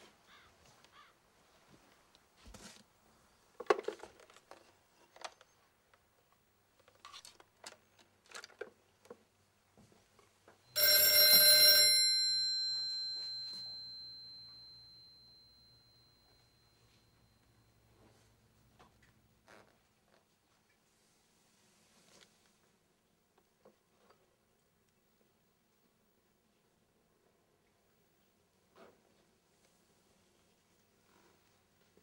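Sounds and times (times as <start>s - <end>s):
metal bell ringing: 10.8s - 16.9s.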